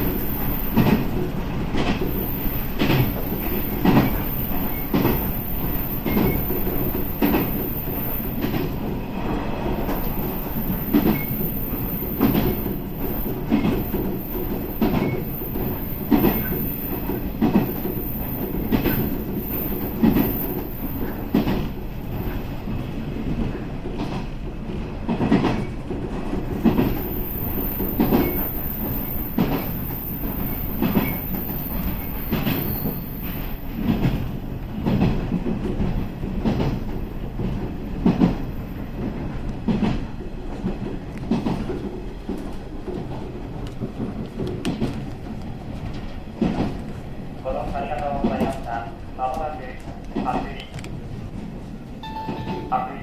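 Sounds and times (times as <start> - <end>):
train rumble: 0.0 - 53.0
train wheels clacking over rail joints: 0.1 - 8.8, 9.8 - 22.4, 23.3 - 34.2, 39.0 - 47.0.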